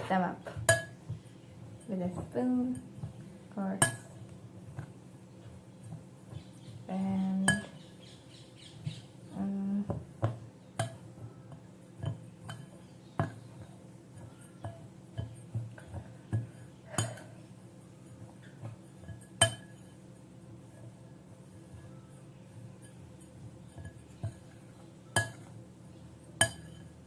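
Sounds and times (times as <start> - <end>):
metal spoon clinking against bowl: 25.1 - 25.5, 26.4 - 27.0.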